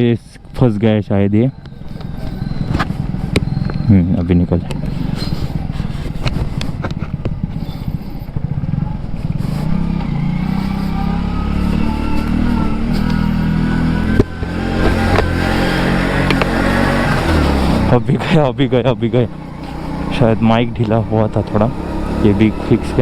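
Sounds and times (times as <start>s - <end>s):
motorcycle engine running: 0.0s - 23.0s
road and wind noise: 0.0s - 23.0s
microphone knocks and scrapes: 5.2s - 7.6s.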